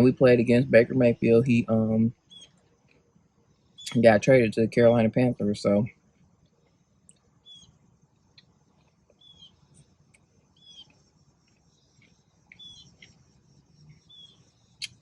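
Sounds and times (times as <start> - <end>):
faint high chirps: 6.7 - 8.5, 9.1 - 15.0.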